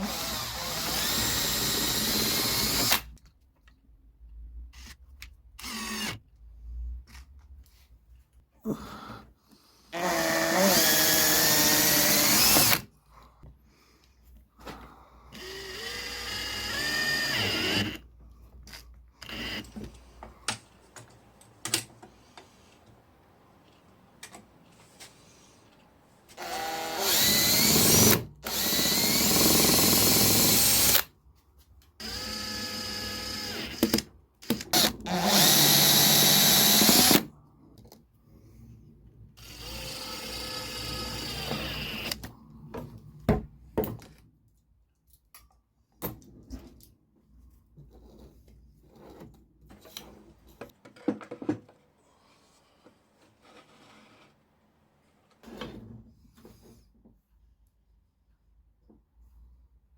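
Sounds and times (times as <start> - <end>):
electric drill spinning: 0.0 - 3.1, 5.6 - 6.2, 10.0 - 12.8, 15.4 - 18.0, 19.2 - 19.8, 26.4 - 31.1, 32.0 - 34.0, 34.6 - 37.3, 39.4 - 42.2.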